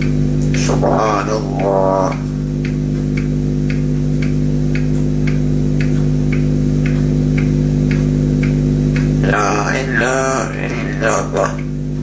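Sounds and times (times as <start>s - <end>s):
low buzzy electrical hum: 0.0s - 12.0s
soft ticks: 1.6s - 9.2s.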